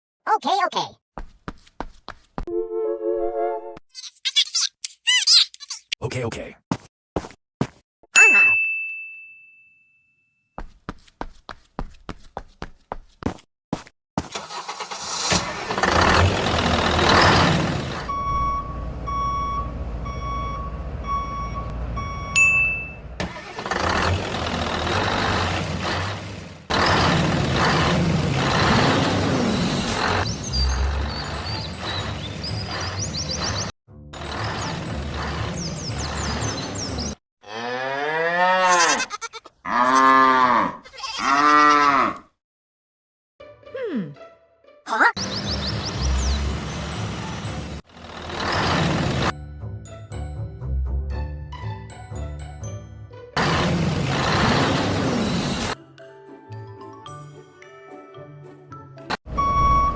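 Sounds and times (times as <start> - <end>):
background music: 2.5 - 3.8, 43.4 - 44.9, 49.4 - 53.4, 55.8 - 59.5
engine starting and running: 14.2 - 37.2, 45.2 - 49.4, 53.4 - 55.8
reversing beeper: 18.1 - 23.1, 59.3 - 59.9
cow mooing: 37.4 - 42.3.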